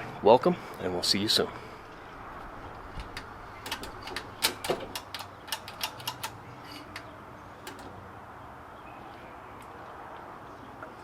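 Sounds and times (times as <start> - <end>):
sharp mechanical clicks and taps: 3.0 - 7.9.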